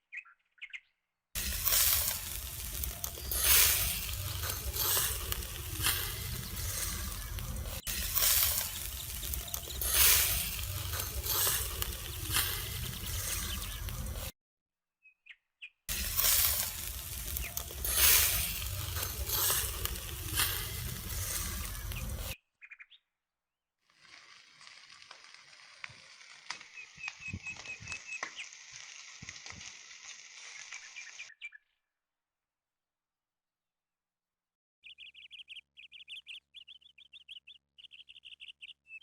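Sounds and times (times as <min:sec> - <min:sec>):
bird chirping: 0:00.0 - 0:01.1, 0:02.3 - 0:14.3, 0:15.0 - 0:15.9, 0:17.2 - 0:23.1, 0:26.7 - 0:28.6, 0:30.5 - 0:31.9, 0:34.8 - 0:39.0
meat sizzling on grill: 0:01.4 - 0:14.3, 0:15.9 - 0:22.4, 0:23.9 - 0:31.4.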